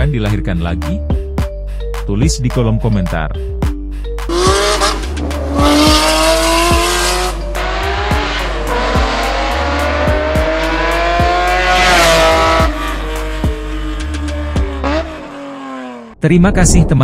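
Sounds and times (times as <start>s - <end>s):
music with beat and bass: 0.0s - 15.3s
car engine revving: 4.3s - 16.2s.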